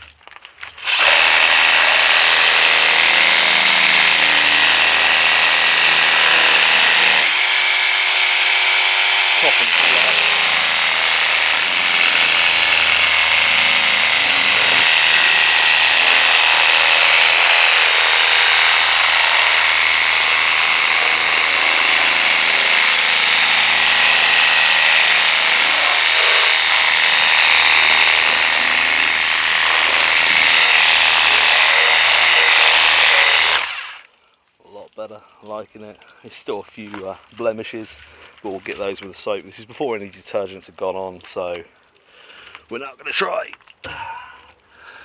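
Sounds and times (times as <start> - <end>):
pressure washer pump whining: 0.0 - 34.1
hissing water jet spraying: 3.0 - 34.1.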